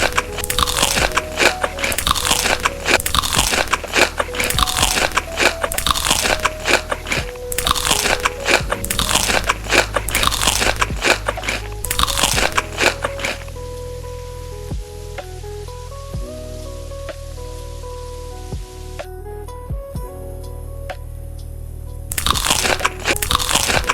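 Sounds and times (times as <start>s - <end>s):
crunchy chewing: 0.0s - 13.5s, 22.1s - 23.9s
soft background music: 0.0s - 23.9s.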